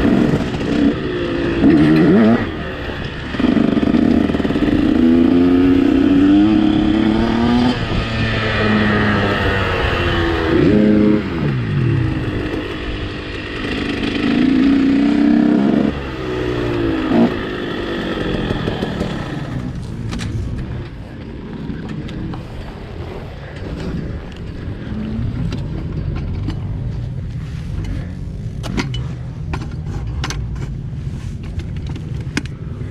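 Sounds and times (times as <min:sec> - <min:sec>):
motocross bike engine: 0:00.0 - 0:32.9
sharp clicks and knocks: 0:28.6 - 0:32.7.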